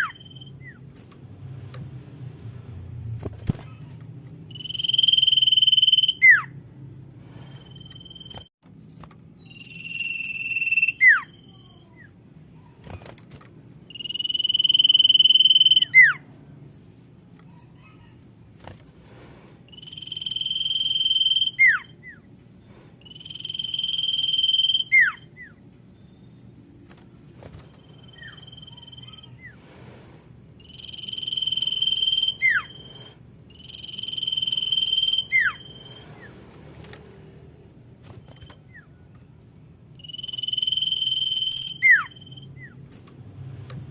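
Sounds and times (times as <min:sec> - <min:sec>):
bird whistling call: 0:04.5 - 0:06.5, 0:09.4 - 0:11.6, 0:13.9 - 0:16.2, 0:19.7 - 0:22.2, 0:23.0 - 0:25.6, 0:30.6 - 0:36.3, 0:40.0 - 0:42.8.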